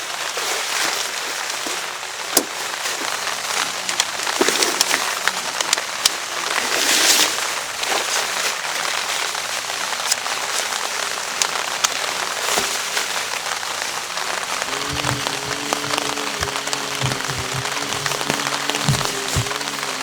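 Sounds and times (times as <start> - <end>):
heavy rain on a tarp: 0.0 - 20.0
raindrops hitting tarp: 0.0 - 20.0.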